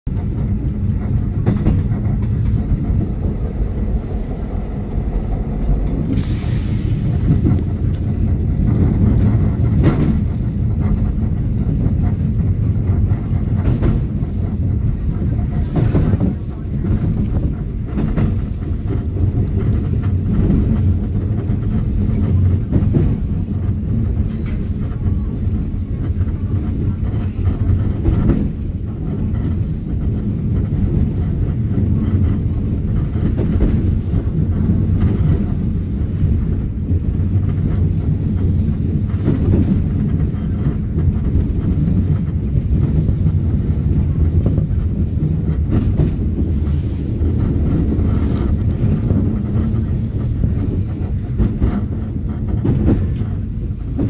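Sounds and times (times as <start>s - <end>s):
train rumbling on rails: 0.0s - 54.0s
wheel clacks over rail joints: 0.1s - 54.0s.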